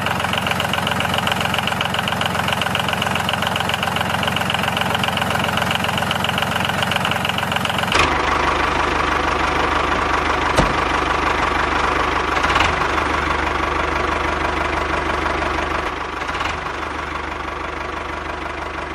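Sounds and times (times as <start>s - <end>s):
motor running with knocking rhythm: 9.1s - 13.5s.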